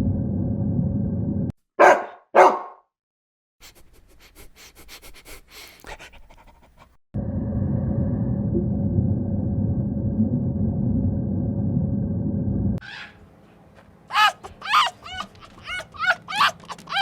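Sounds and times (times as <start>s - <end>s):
low rumble: 0.0s - 1.5s, 7.2s - 12.8s
dog barking: 1.8s - 2.8s, 12.8s - 13.2s, 14.1s - 17.0s
dog panting: 3.6s - 7.0s, 14.1s - 17.0s.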